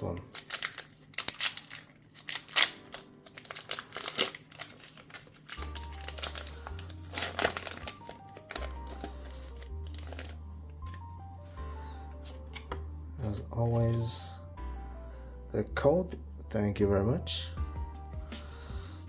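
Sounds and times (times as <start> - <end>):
foil wrapper crinkling: 0.0 - 11.1
background music with bass line: 10.8 - 19.0.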